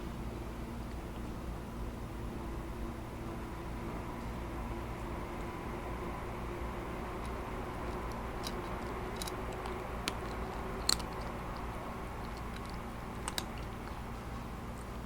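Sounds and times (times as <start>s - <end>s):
steady background hum: 0.0s - 15.0s
cat crunching dry kibble: 7.2s - 14.2s.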